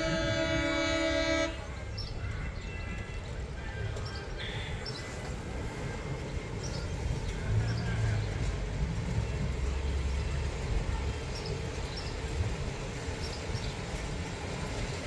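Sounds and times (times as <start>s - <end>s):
miniature steam train rumbling: 0.0s - 15.0s.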